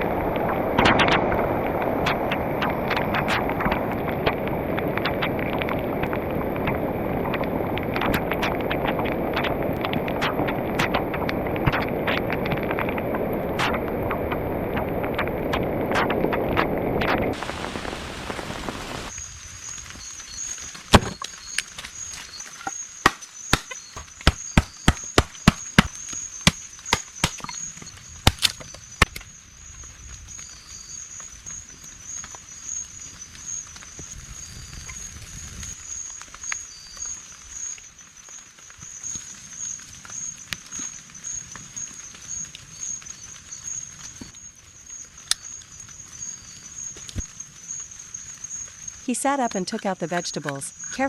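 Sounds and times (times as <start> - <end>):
heavy rain: 0.0 - 22.4
high insect trill: 19.0 - 51.0.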